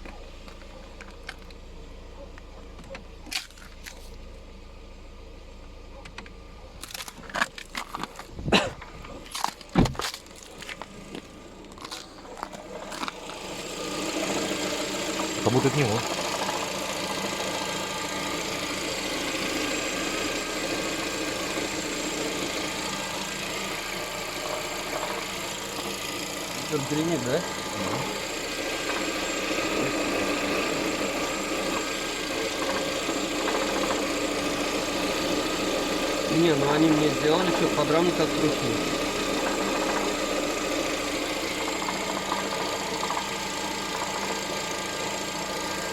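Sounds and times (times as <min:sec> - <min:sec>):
car engine idling with rattle: 0:00.0 - 0:45.9.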